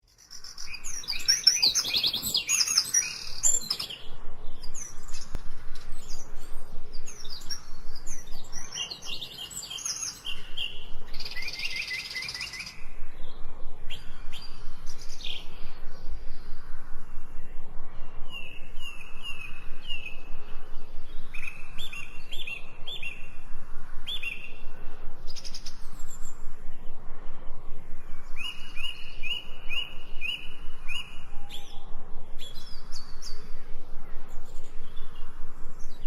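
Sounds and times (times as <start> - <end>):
birds chirping and singing: 0.1 - 16.7, 18.1 - 27.0, 28.0 - 36.0
rapid bird trill: 0.1 - 17.2, 18.2 - 26.4.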